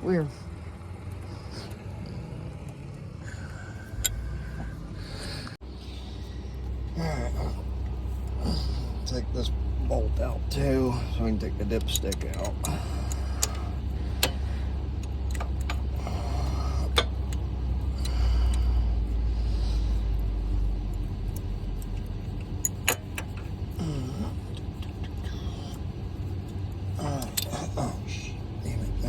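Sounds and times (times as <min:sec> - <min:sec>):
machine low rumble: 0:00.0 - 0:29.0
hand tools clinking on metal: 0:11.3 - 0:18.6.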